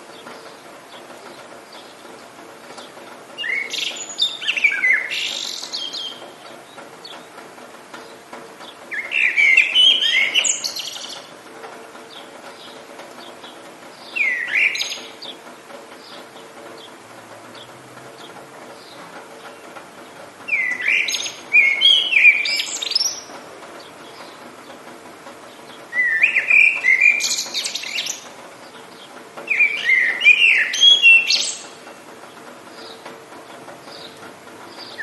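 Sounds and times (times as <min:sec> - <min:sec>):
songbird whistling song: 0:03.4 - 0:06.3, 0:08.9 - 0:11.3, 0:14.0 - 0:15.4, 0:20.5 - 0:23.3, 0:25.7 - 0:28.2, 0:29.0 - 0:31.8, 0:34.8 - 0:35.0.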